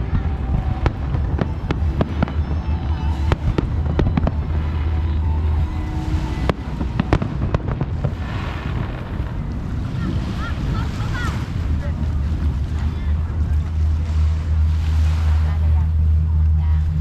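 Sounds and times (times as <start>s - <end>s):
fireworks bangs and crackles: 0.0s - 12.8s
deep rumble: 0.0s - 17.0s.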